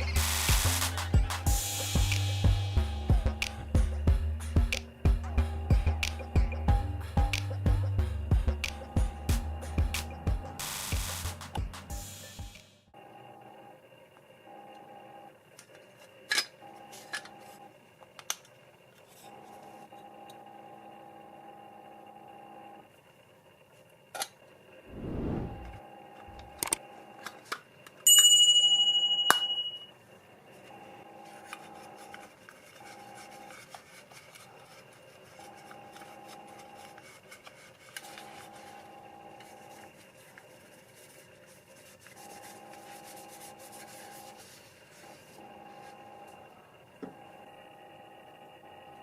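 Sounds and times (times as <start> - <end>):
faint scraping and rubbing: 24.9 - 25.8
bright metallic ring: 28.1 - 30.0.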